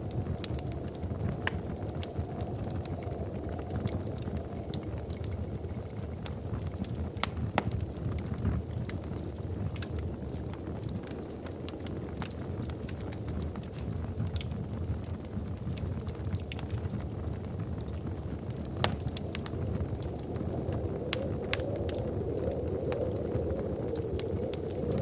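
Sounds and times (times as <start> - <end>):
fire pops and snaps: 0.0 - 25.0
wood fire crackling: 0.0 - 25.0.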